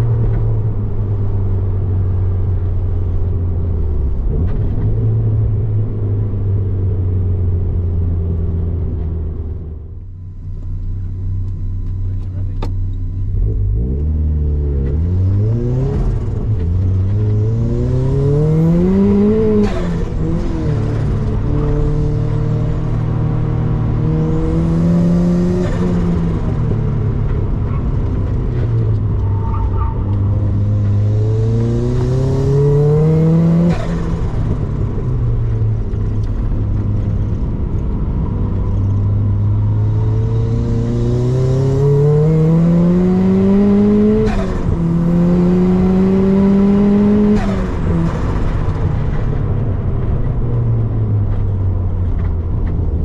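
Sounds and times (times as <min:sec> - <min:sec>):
car engine revving hard: 0:13.4 - 0:26.8, 0:29.7 - 0:34.8, 0:39.6 - 0:48.8.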